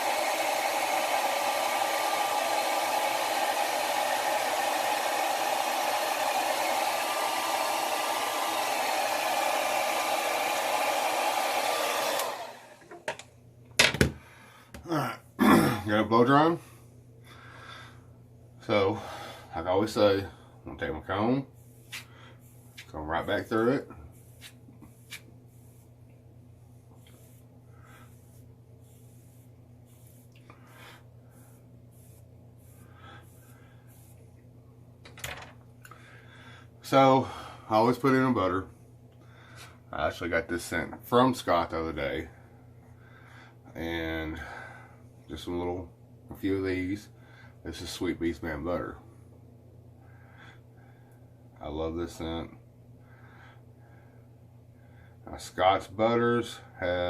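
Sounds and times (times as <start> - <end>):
blow dryer motor whine: 0.0 - 13.2
faint steady hum: 12.8 - 57.0
comb scratching through beard: 21.7 - 26.0, 26.9 - 30.5.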